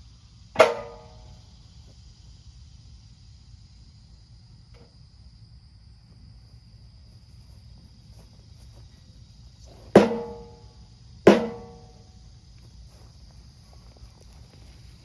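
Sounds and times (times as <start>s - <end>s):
insects droning: 0.0s - 15.0s
metallic knocks: 0.6s - 1.3s, 9.9s - 10.7s, 11.3s - 12.0s.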